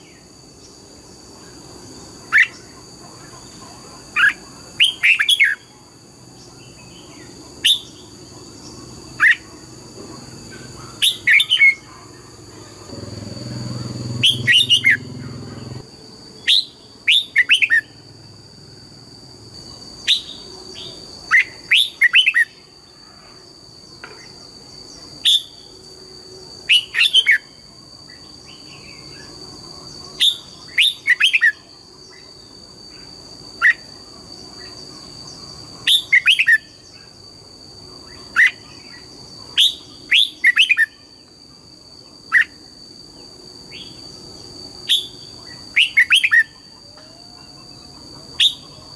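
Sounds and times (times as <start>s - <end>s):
bird singing whistled notes: 6.6s - 8.1s, 13.1s - 15.8s, 16.4s - 18.0s, 35.9s - 37.0s, 44.8s - 46.7s.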